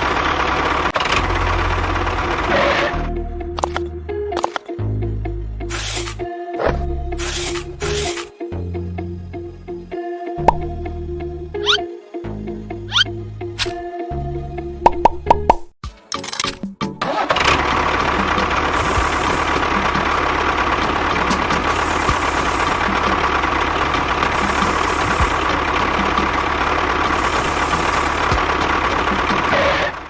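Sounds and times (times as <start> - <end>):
small motor running: 5.7 - 8.3, 18.7 - 20.1, 21.5 - 29.9.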